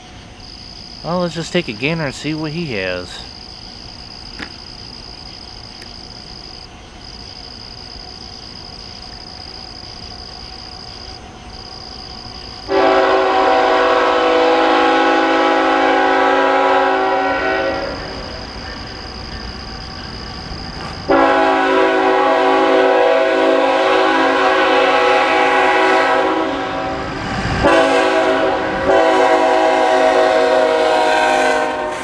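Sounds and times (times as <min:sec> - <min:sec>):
high-pitched insect trill: 0:00.0 - 0:12.8, 0:16.9 - 0:21.3
locomotive air horn blast: 0:12.7 - 0:18.2, 0:20.9 - 0:32.0.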